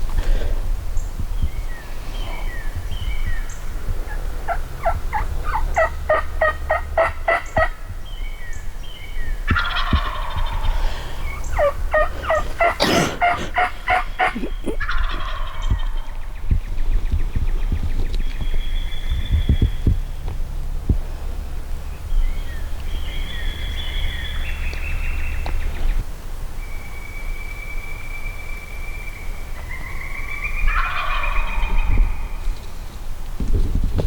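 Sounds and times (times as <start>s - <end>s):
low wind rumble: 0.0s - 34.0s
turkey gobbling: 2.3s - 7.9s, 9.4s - 16.3s, 29.6s - 32.4s.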